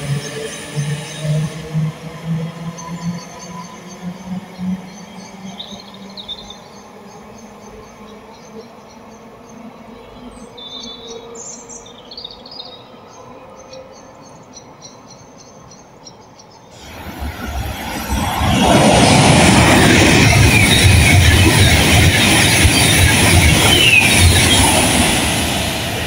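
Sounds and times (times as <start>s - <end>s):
train rumble: 16.8s - 26.0s.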